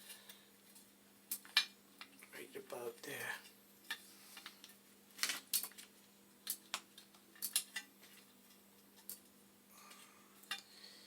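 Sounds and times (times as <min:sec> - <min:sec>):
faint steady hum: 0:00.0 - 0:11.0
small metal parts clinking: 0:07.3 - 0:08.2.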